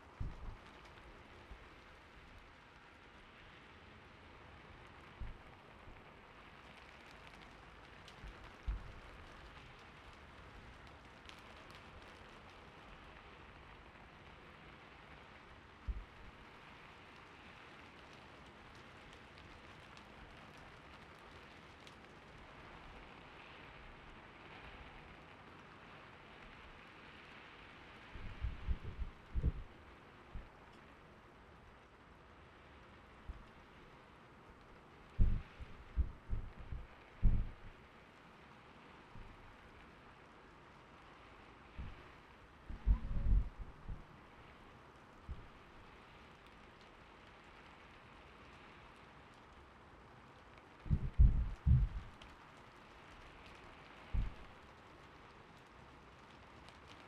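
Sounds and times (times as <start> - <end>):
soft rain hiss: 0.0 - 57.0
soft low thuds: 28.2 - 29.7, 35.2 - 37.7, 42.7 - 44.1, 50.9 - 52.1, 54.2 - 54.4.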